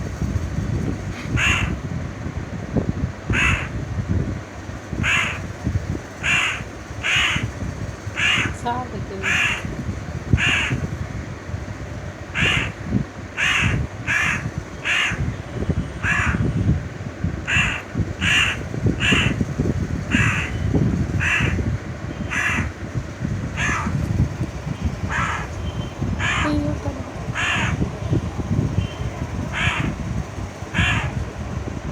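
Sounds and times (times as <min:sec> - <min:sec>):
young crow cawing: 0:01.4 - 0:01.8, 0:03.3 - 0:03.8, 0:05.0 - 0:05.5, 0:06.2 - 0:07.5, 0:08.2 - 0:08.6, 0:09.2 - 0:09.7, 0:10.4 - 0:10.9, 0:12.4 - 0:12.8, 0:13.4 - 0:15.3, 0:16.0 - 0:16.5, 0:17.5 - 0:19.4, 0:20.1 - 0:20.6, 0:21.2 - 0:21.6, 0:22.3 - 0:22.8, 0:23.6 - 0:24.0, 0:25.1 - 0:25.5, 0:26.2 - 0:26.7, 0:27.3 - 0:27.8, 0:29.5 - 0:30.0, 0:30.7 - 0:31.2.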